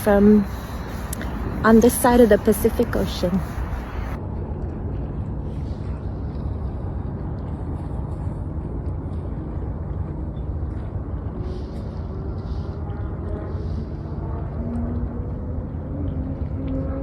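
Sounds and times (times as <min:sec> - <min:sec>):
surf rumbling: 0:00.0 - 0:04.2
wind: 0:00.0 - 0:17.0.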